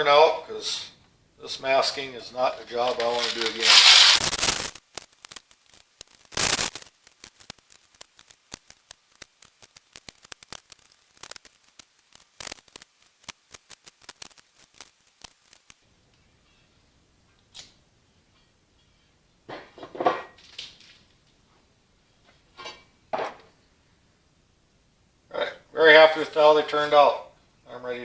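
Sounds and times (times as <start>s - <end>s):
paper crinkling: 2.4s - 15.8s
paper and tape ripping: 2.5s - 15.8s.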